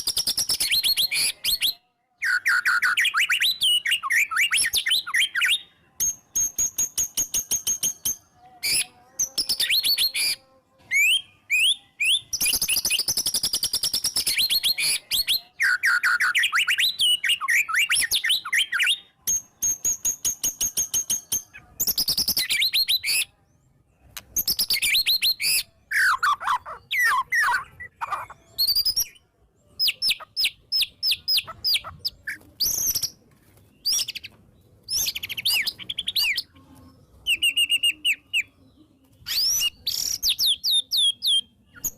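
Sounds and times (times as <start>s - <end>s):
shama singing chips and whistles: 0.0s - 23.3s, 39.2s - 41.9s.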